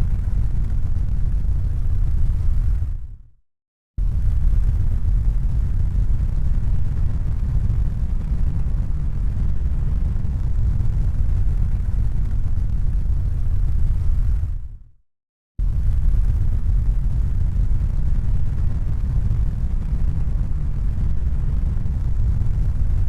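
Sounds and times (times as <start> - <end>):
deep rumbling noise: 15.6 - 23.0.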